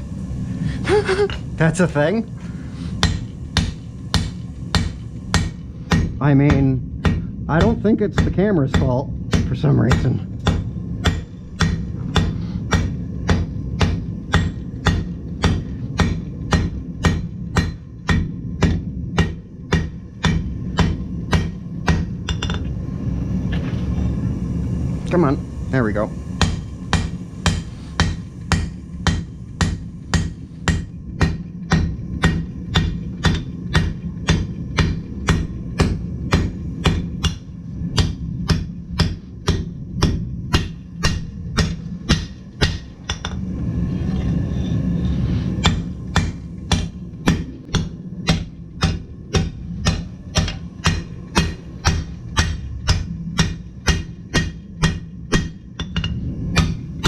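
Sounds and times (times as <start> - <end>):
steady low hum: 0.0 - 57.0
hammer striking steel on anvil: 2.9 - 22.7, 26.4 - 43.4, 45.5 - 57.0.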